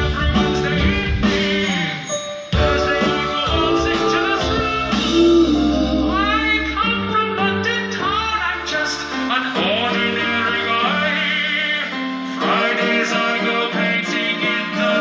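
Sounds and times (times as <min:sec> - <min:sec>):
rock band playing: 0:00.0 - 0:07.7
man singing: 0:00.0 - 0:15.0.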